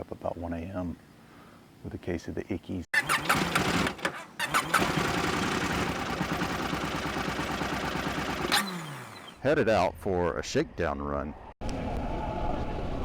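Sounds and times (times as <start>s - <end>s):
motorcycle engine starting: 3.0s - 9.4s.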